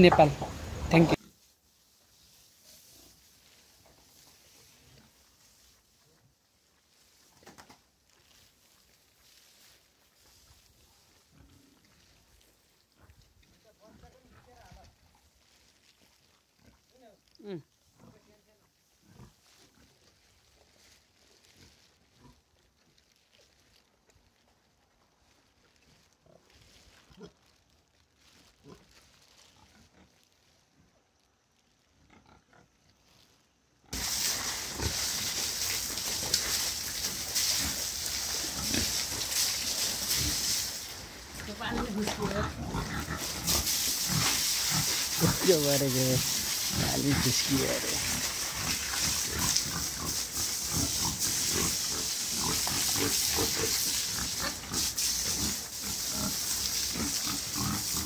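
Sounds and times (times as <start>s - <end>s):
steady hiss: 33.9s - 58.0s
pigs grunting and squealing: 34.0s - 58.0s.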